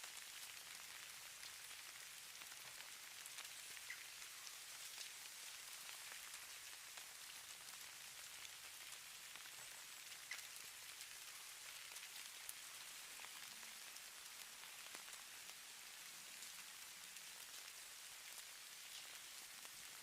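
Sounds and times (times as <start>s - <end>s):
soft snow hiss: 0.0s - 20.0s
tiny light ticks: 10.2s - 10.6s.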